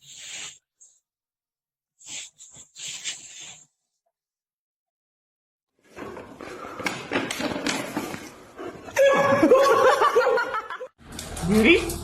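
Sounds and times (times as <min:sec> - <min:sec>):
people laughing: 0:09.0 - 0:11.0.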